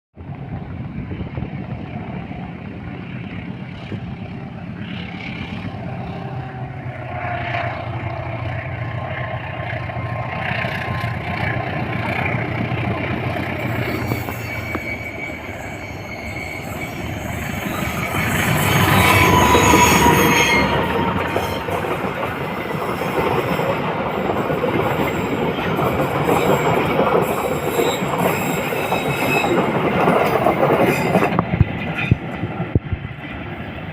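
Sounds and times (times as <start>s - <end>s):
train engine hum: 0.2s - 33.9s
train carriages rolling: 9.0s - 32.8s
wheel squeal on rail: 12.1s - 32.2s.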